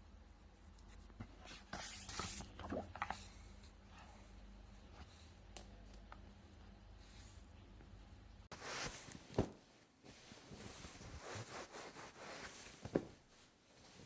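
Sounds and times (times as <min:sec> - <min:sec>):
handling rustling: 0:08.5 - 0:14.0.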